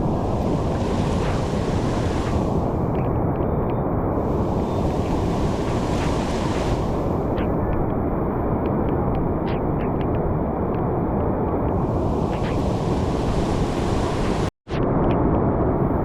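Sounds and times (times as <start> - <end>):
floodwater rushing: 0.0 - 2.8, 4.2 - 7.6, 11.8 - 14.5.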